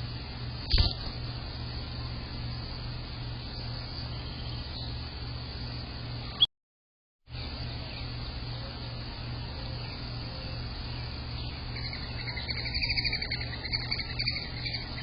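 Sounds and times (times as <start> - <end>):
steady low hum: 0.0 - 6.5, 7.3 - 15.0
high pulsed animal trill: 11.8 - 15.0.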